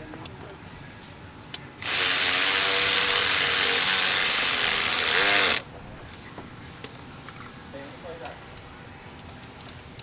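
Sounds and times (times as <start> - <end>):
power tool running: 1.8 - 5.6.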